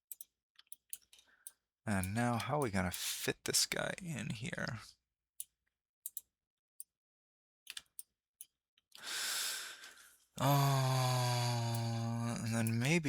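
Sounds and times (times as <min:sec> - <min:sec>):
soft mouse clicks: 0:06.1 - 0:07.0, 0:07.7 - 0:09.0
breathy sigh: 0:09.0 - 0:12.5
person humming: 0:10.4 - 0:13.0.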